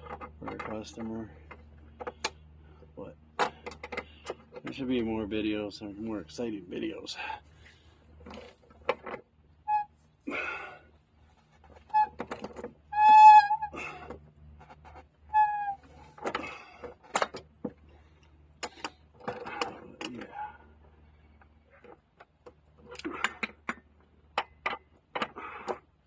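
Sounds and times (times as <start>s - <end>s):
short high squeaks: 9.6s - 10.0s, 11.8s - 12.2s, 12.8s - 14.0s, 15.2s - 16.1s.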